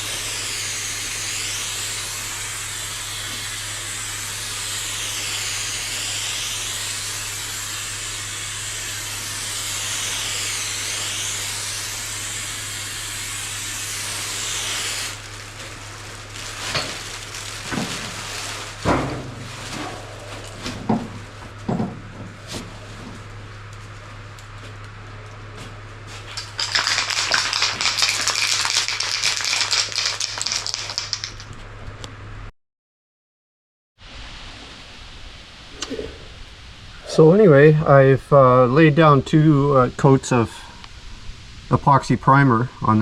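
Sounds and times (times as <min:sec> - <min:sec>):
aerosol can spraying: 0:00.0 - 0:18.2, 0:26.4 - 0:31.5
steady low hum: 0:34.1 - 0:43.0.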